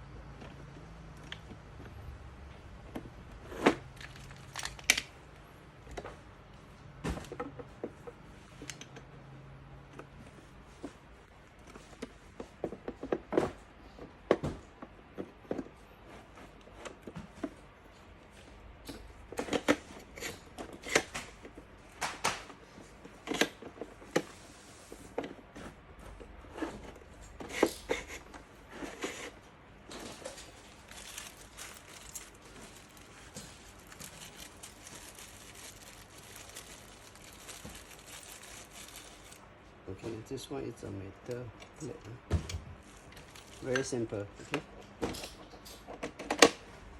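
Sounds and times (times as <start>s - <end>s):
rustling: 24.5s - 39.5s, 42.7s - 44.2s
metal parts knocking and clicking: 29.9s - 39.4s.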